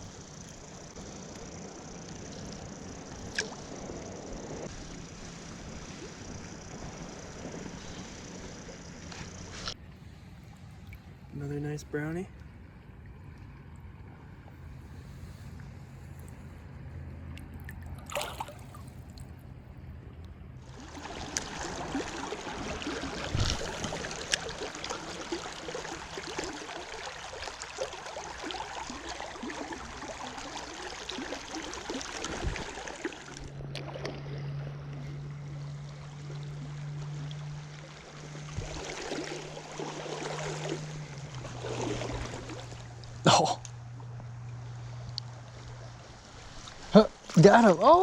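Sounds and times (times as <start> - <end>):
steady low hum: 0.0 - 48.0
river water rushing: 17.6 - 19.2, 20.6 - 48.0.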